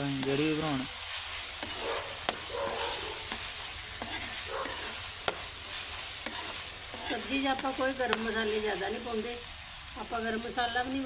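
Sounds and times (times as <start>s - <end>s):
metal spatula scraping: 0.0s - 8.6s
masala sizzling: 0.0s - 11.0s.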